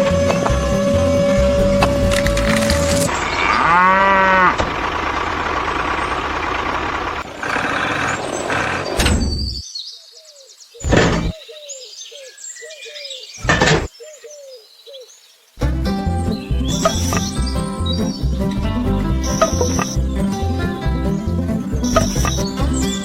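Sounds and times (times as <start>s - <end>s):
bird chirping: 7.8s - 23.0s.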